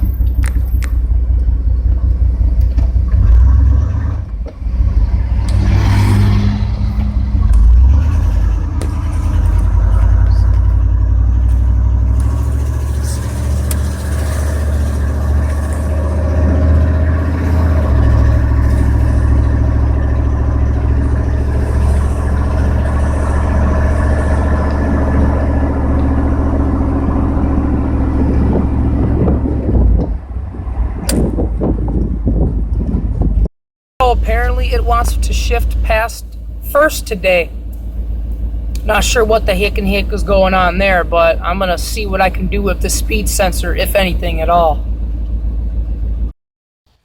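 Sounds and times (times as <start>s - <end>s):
pickup truck engine droning: 0.0s - 46.3s.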